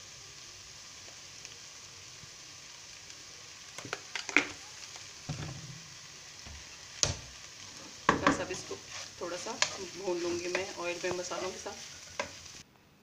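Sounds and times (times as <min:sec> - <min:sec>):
chicken sizzling in oil: 0:00.0 - 0:12.6
utensil clicking on pan: 0:09.4 - 0:12.5.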